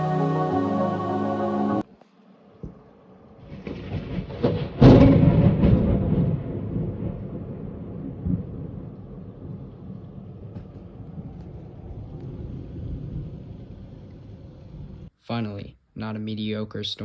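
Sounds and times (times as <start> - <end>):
thunder rolling: 2.7 - 15.1.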